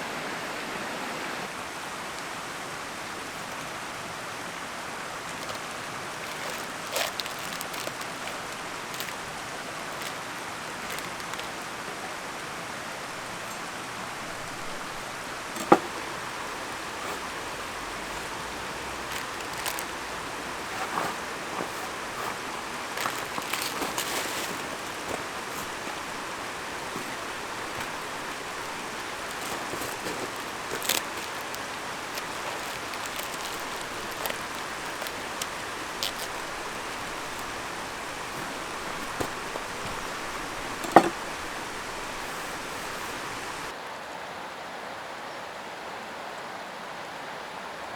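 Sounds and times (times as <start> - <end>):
mountain stream flowing: 0.0 - 47.9.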